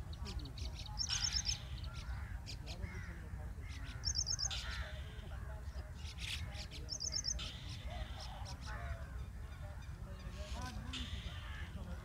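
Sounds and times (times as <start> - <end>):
bird trilling: 1.0 - 2.2, 3.8 - 4.8.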